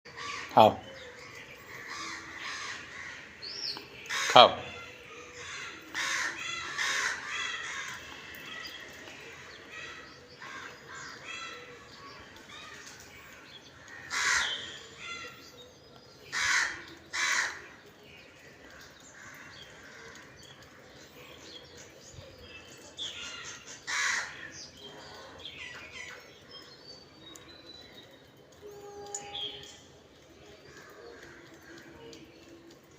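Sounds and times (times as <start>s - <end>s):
crows cawing: 0.1s - 0.9s, 1.7s - 3.4s, 4.1s - 12.9s, 13.8s - 15.4s, 16.3s - 17.8s, 18.8s - 20.8s, 23.3s - 25.4s.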